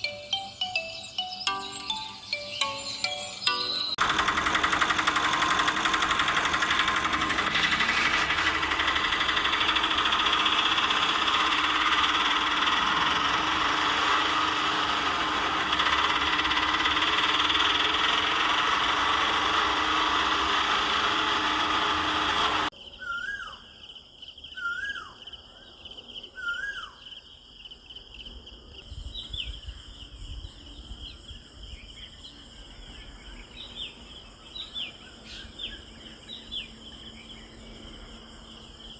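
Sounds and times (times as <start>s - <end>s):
birds chirping: 0.0s - 4.0s, 28.8s - 38.9s
electric motor buzzing whine: 0.0s - 22.7s
high steady chirring: 0.0s - 22.7s.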